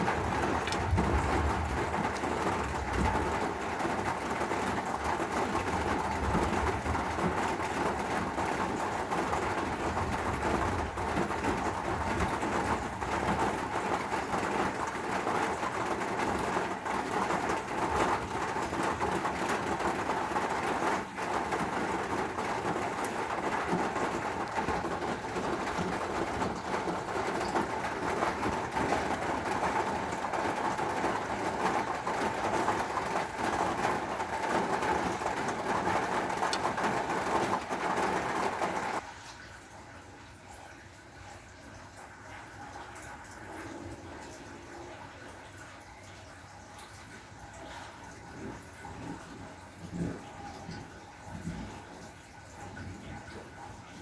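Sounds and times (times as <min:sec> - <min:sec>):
thunder rumble: 0:00.0 - 0:39.0
steady rain: 0:00.0 - 0:54.0.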